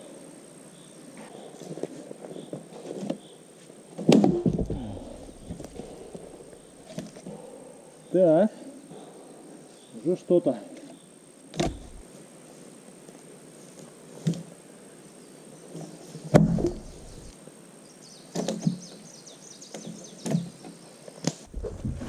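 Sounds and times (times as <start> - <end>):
wood crackling: 4.0 - 7.4, 11.5 - 12.0, 16.3 - 17.3, 21.3 - 22.0.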